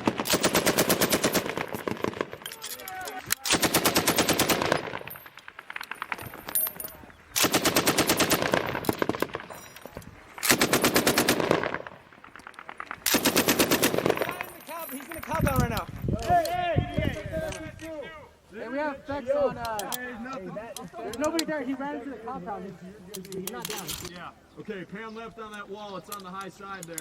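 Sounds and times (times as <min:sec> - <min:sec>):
machine-gun bursts: 0:00.0 - 0:02.6, 0:03.4 - 0:06.5, 0:07.4 - 0:09.6, 0:10.4 - 0:14.6
gunfire echo: 0:07.4 - 0:09.6, 0:10.4 - 0:14.8.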